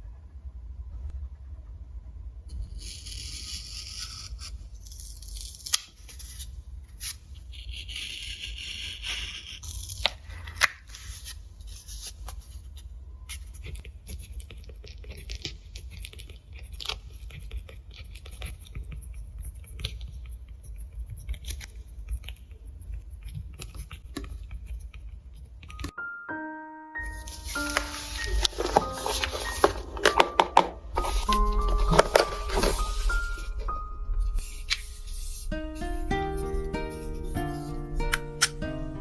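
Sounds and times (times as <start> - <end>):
material scraping and rustling: 27.1 - 33.7
scissors snipping: 36.9 - 38.6
sharp snap: 38.1 - 38.6.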